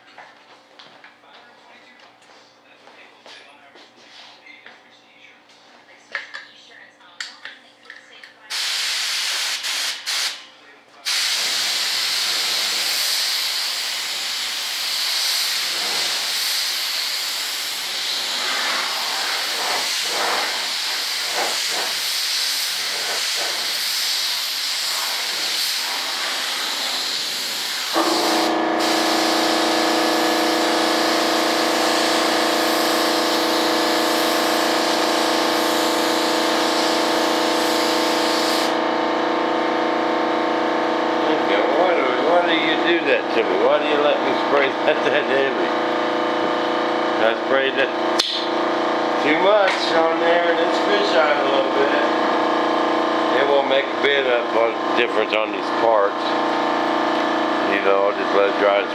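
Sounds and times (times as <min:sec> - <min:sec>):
spray hiss: 0:08.5 - 0:10.4, 0:11.1 - 0:29.5
motor hum: 0:25.0 - 0:58.9.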